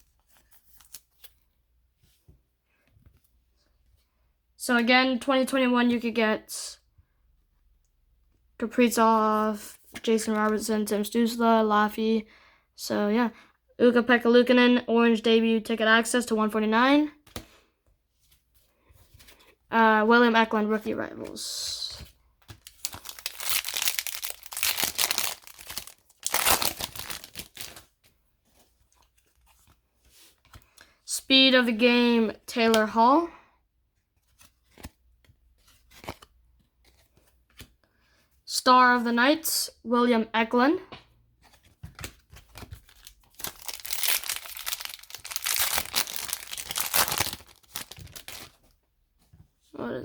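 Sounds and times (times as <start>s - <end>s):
foil wrapper crinkling and tearing: 22.6s - 27.9s, 42.8s - 48.7s.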